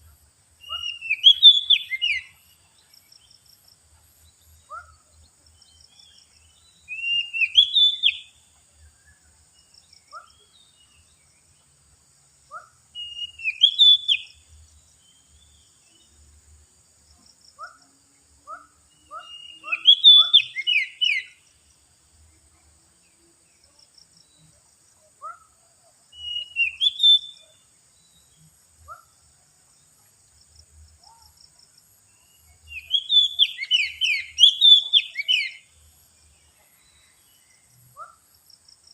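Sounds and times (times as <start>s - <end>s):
bird singing whistled phrases: 0.6s - 2.4s, 6.8s - 8.3s, 13.0s - 14.4s, 19.1s - 21.4s, 26.1s - 27.6s, 32.6s - 35.7s.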